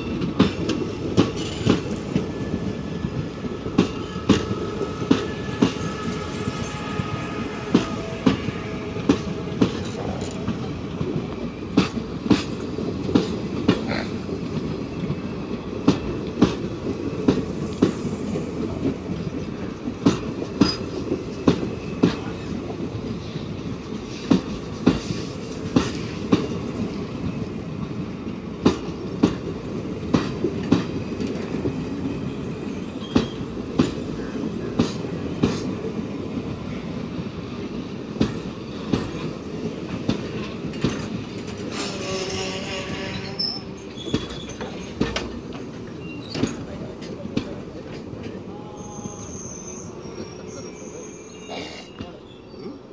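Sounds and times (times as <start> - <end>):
train wheels clacking over rail joints: 0.0 - 48.4
train rolling rumble: 0.0 - 52.9
faint wheel squeal: 45.9 - 46.6, 48.7 - 52.8.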